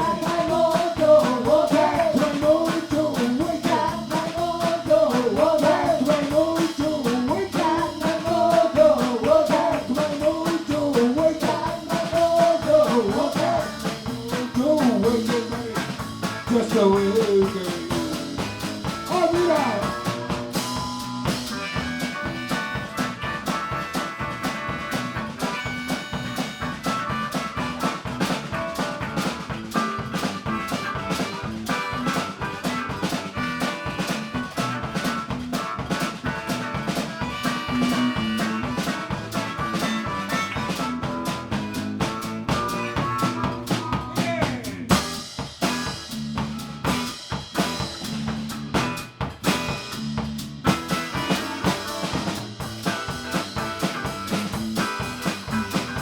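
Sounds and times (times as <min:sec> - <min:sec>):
live blues band playing: 0:00.0 - 0:56.0
bending lead guitar melody: 0:18.3 - 0:43.8, 0:50.6 - 0:56.0.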